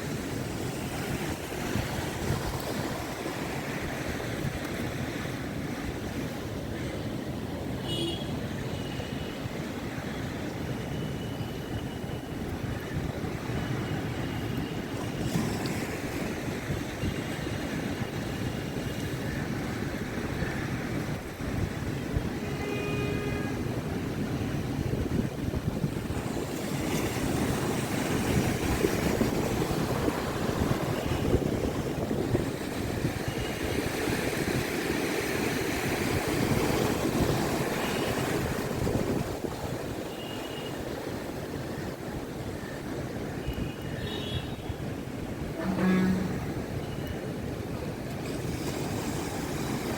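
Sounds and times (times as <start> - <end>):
strong wind: 14.8 - 49.9
surf rushing: 25.1 - 40.2.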